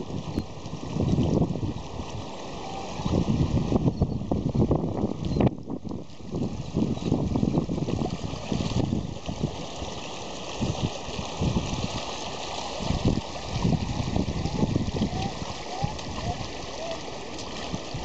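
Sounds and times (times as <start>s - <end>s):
flood water rushing: 0.0s - 18.0s
wind buffeting microphone: 0.0s - 18.0s.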